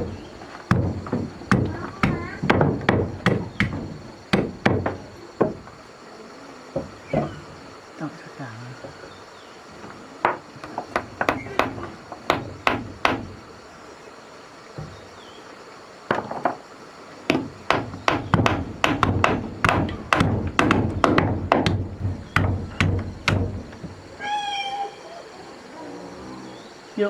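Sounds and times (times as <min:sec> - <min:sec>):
hand tool striking: 0:00.0 - 0:05.6, 0:17.3 - 0:23.9.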